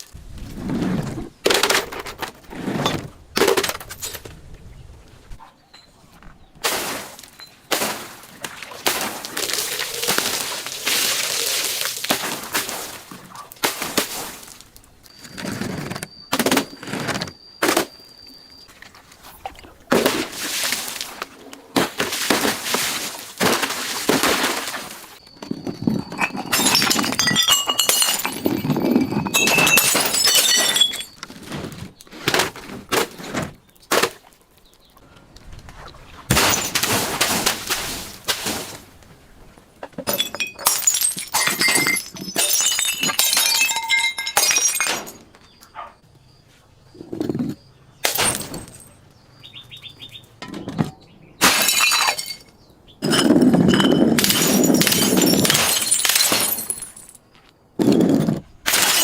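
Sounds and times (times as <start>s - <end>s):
glass bottles crushed and breaking: 6.6s - 21.2s, 21.8s - 33.2s, 36.3s - 38.8s, 40.0s - 45.3s, 48.0s - 49.0s, 51.4s - 59.0s
glass shards tinkling: 25.2s - 31.2s, 40.1s - 45.2s, 51.5s - 57.2s.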